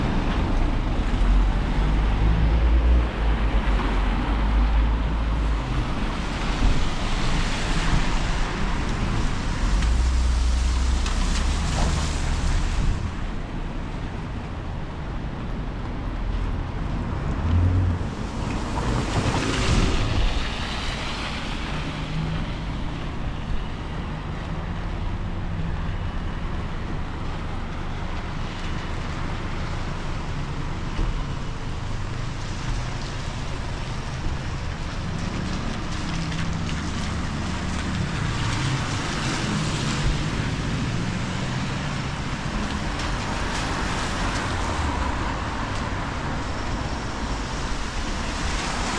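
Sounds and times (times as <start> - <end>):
traffic on wet streets: 0.0 - 48.9
wind on microphone: 16.0 - 24.1.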